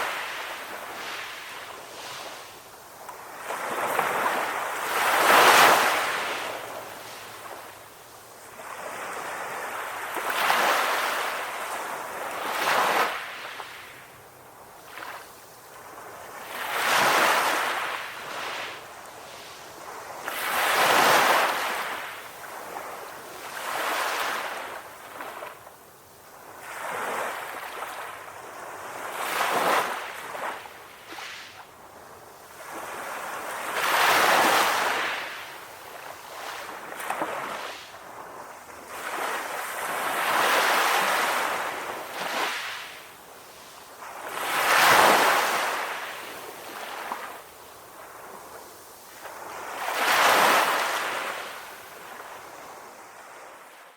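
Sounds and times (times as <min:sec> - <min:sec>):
sea waves breaking in surf: 0:32.5 - 0:53.8.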